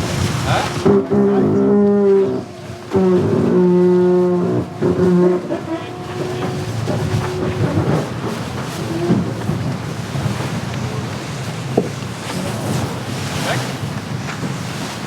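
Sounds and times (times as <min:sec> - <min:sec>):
horn blasts: 0:00.0 - 0:09.8
water noise: 0:00.0 - 0:15.0
wind: 0:00.0 - 0:15.0.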